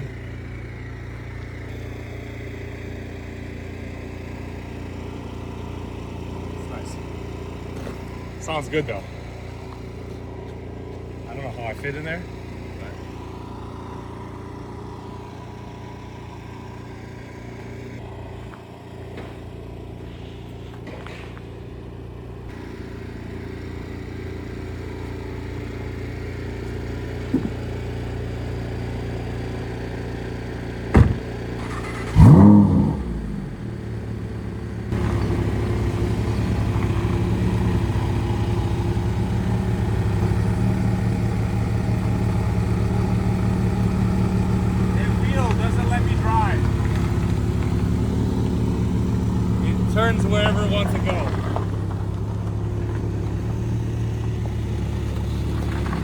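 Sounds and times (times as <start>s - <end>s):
car engine idling: 0.0s - 56.0s
sharp knock: 30.9s - 31.3s.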